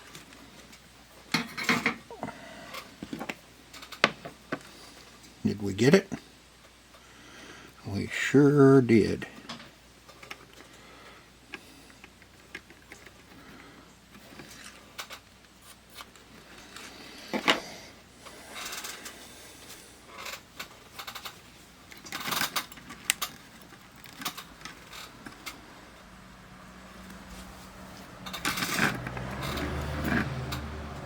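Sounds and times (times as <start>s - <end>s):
parts rattling: 20.1s - 26.1s, 26.9s - 31.0s
tools clicking and clattering: 20.2s - 25.6s, 27.1s - 31.0s.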